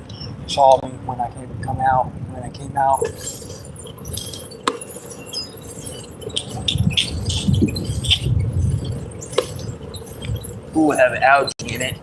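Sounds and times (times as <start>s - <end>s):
low rumbling: 0.0s - 12.0s
metallic jingling and clinking: 3.0s - 11.0s.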